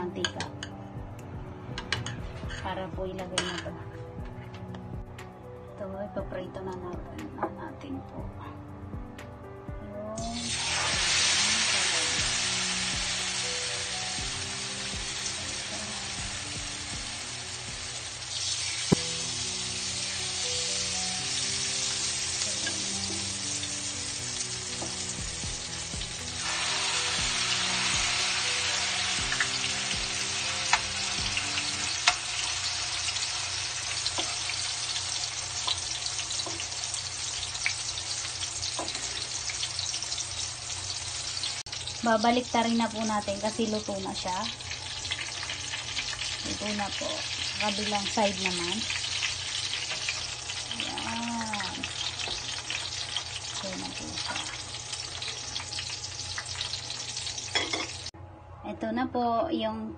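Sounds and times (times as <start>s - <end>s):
eggplant sizzling in hot oil: 10.2s - 58.1s.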